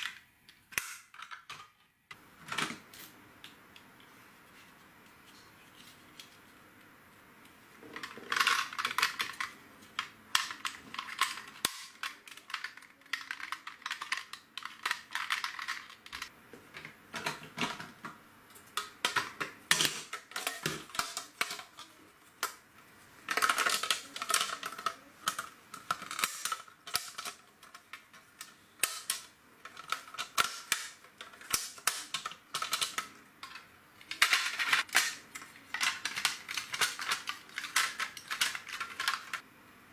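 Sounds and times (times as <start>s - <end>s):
plastic bricks clicking and rattling: 7.9s - 16.3s, 23.2s - 39.4s.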